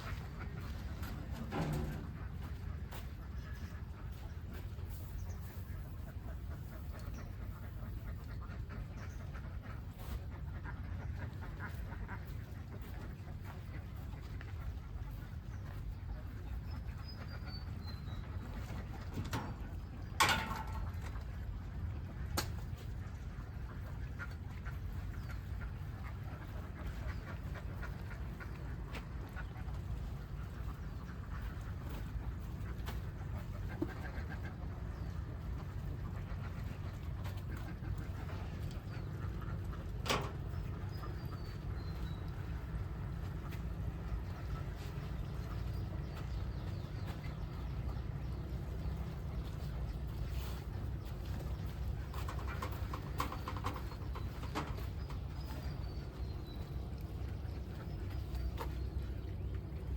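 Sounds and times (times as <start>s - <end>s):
ducks quacking: 0.0s - 59.9s
steady low rumble: 0.0s - 59.9s.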